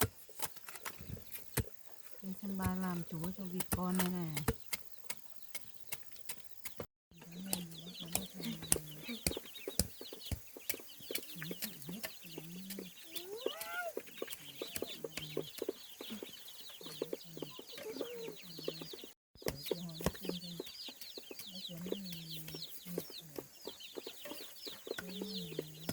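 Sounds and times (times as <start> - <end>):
ducklings peeping: 1.9 - 25.9
rising bird call: 11.5 - 15.5.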